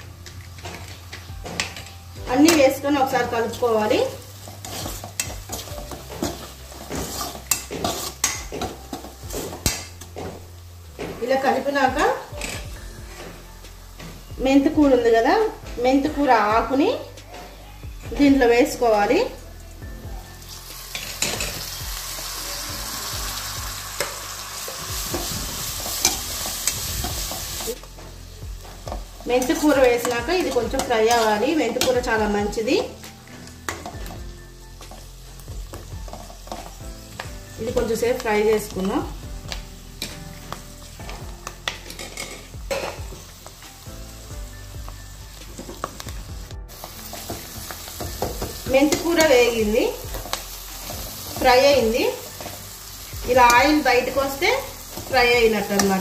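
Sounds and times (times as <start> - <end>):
leaves sizzling in hot oil: 0.0 - 17.4, 18.0 - 56.0
spatula scraping a pan: 4.1 - 11.6.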